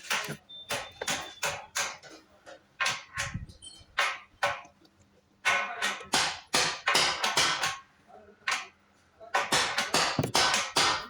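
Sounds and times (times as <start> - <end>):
hammer striking metal: 5.4 - 7.8, 9.4 - 11.0.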